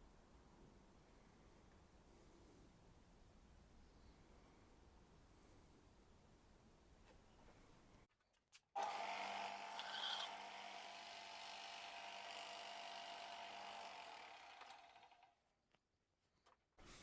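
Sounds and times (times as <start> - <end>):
electric sander grinding knife: 8.8 - 15.4.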